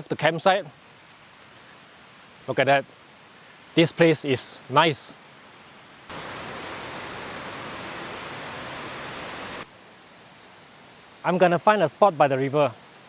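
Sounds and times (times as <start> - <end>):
river water rushing: 5.5 - 9.7.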